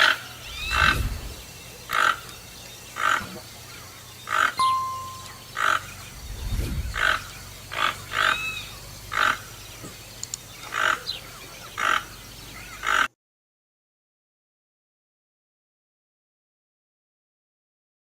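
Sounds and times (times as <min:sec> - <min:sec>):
toucan croaking calls: 0:00.0 - 0:13.1
bird whistled chirp: 0:00.4 - 0:01.4.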